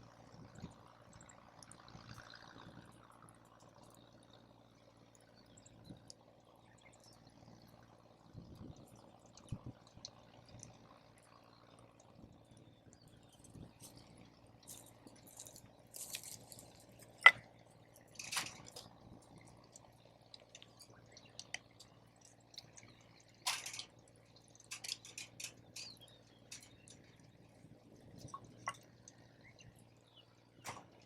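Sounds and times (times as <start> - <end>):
campfire crackling: 13.3 - 29.2.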